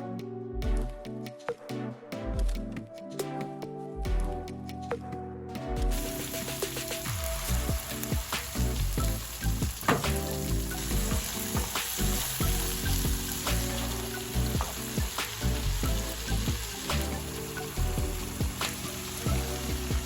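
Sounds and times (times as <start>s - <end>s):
food sizzling in a pan: 5.9s - 20.0s.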